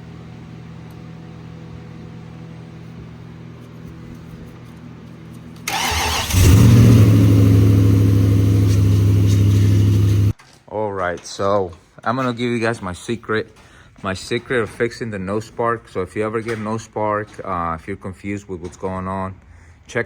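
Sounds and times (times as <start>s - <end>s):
engine running: 5.7s - 10.3s
starter cranking: 5.7s - 10.3s.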